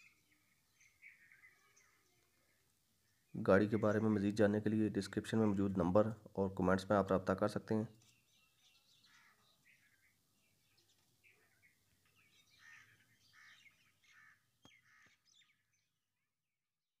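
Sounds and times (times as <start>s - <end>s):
faint bird chirps: 0.0s - 4.4s, 8.0s - 16.4s.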